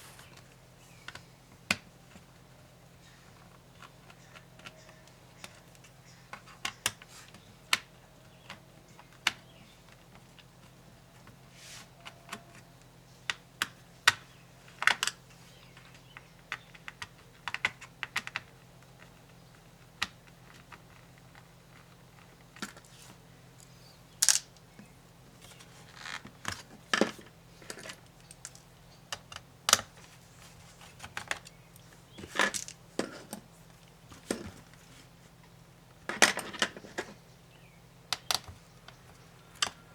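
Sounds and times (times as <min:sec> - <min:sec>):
laptop parts clicking and tapping: 0:03.0 - 0:11.4, 0:12.0 - 0:22.9, 0:26.1 - 0:30.1, 0:30.8 - 0:33.5, 0:38.1 - 0:39.9.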